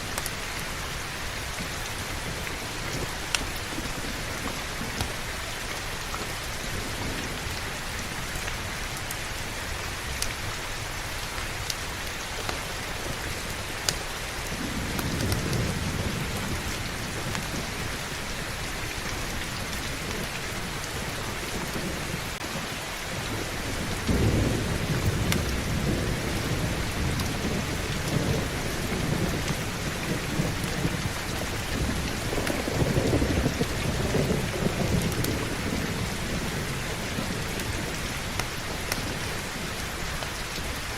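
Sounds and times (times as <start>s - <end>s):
heavy rain: 0.0s - 40.9s
thunder rumbling: 14.5s - 22.4s, 23.1s - 39.9s.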